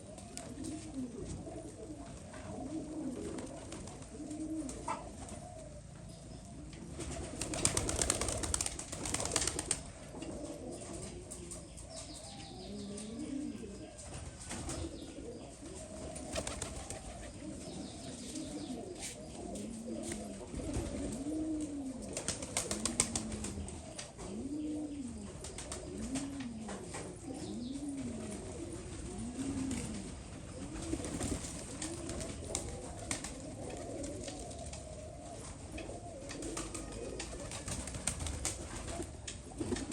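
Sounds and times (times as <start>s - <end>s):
pigeons cooing: 0.0s - 39.9s
wings flapping: 7.0s - 9.9s, 16.2s - 17.4s, 22.2s - 23.6s, 30.6s - 34.8s, 36.3s - 39.9s.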